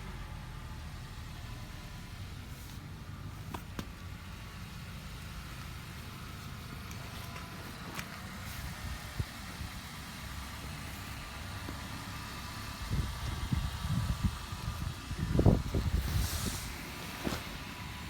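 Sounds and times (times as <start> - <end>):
scooter engine idling: 0.0 - 18.0
wind buffeting microphone: 12.8 - 16.9.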